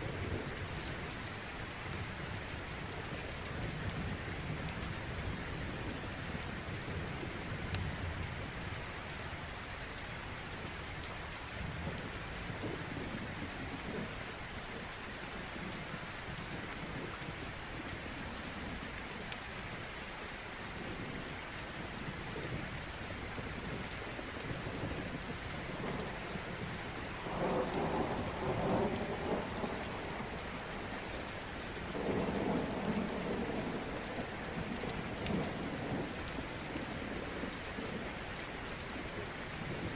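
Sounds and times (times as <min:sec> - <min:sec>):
steady rain: 0:00.0 - 0:39.9
thunder rumbles: 0:24.4 - 0:38.1.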